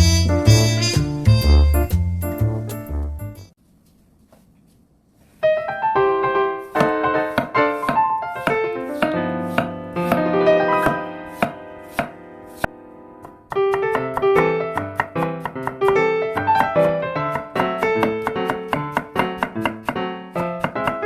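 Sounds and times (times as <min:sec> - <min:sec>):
light piano music: 0:00.0 - 0:03.6, 0:05.4 - 0:21.0
knife chopping on cutting board: 0:06.8 - 0:10.2, 0:10.8 - 0:21.0.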